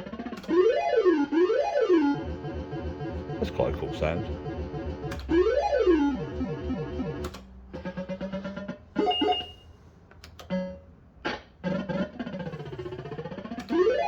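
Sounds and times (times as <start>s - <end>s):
electronic tone sweeping: 1.0s - 7.2s
sharp clicks: 4.9s - 5.4s, 6.3s - 7.5s
fruit machine beeping notes: 9.0s - 9.7s.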